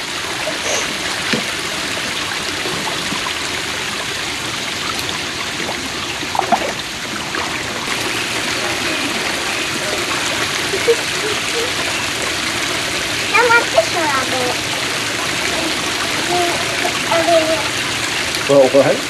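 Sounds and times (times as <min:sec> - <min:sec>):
creek water running: 0:00.0 - 0:19.0.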